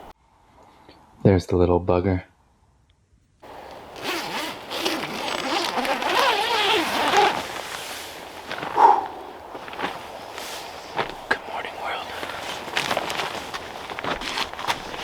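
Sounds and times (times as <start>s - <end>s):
zipper being pulled: 3.5s - 11.0s, 12.2s - 15.0s.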